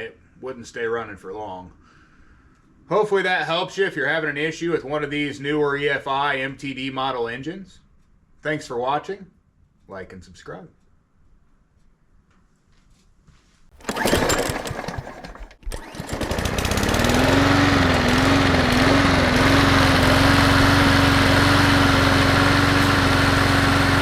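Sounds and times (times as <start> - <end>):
mower engine starting and running: 13.7 - 24.0.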